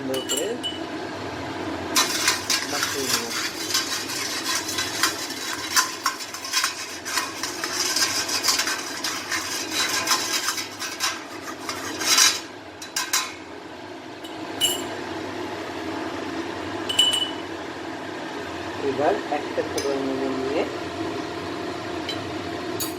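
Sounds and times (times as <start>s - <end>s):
boiling water: 0.0s - 22.9s
utensil scraping a metal plate: 2.0s - 13.2s.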